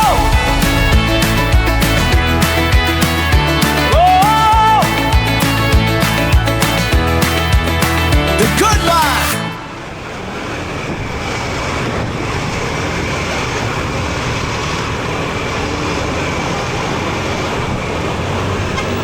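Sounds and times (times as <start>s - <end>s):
motorcycle engine: 0.0s - 8.3s
music: 0.0s - 9.6s
passing vehicles: 0.0s - 19.0s
tyre road noise: 0.0s - 19.0s.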